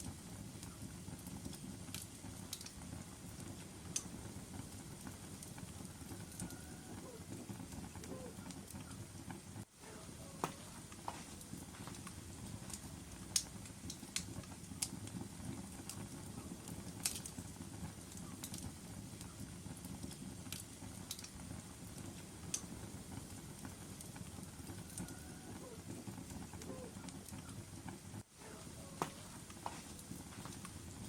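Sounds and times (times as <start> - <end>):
fire rumbling in fireplace: 0.0 - 31.0
wood crackling and popping: 0.0 - 31.0.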